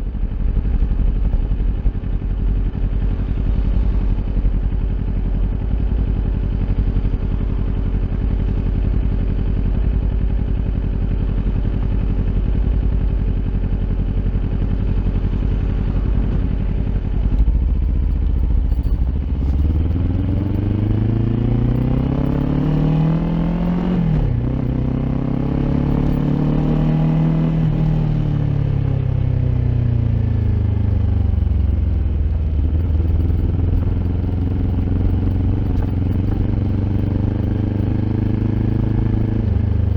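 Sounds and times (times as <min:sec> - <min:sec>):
motorcycle engine revving: 0:10.9 - 0:39.9.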